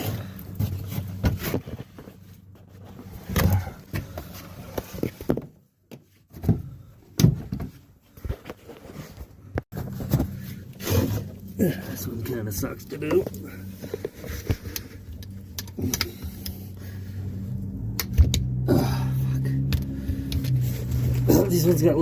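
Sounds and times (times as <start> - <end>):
low hum: 9.8 - 21.8.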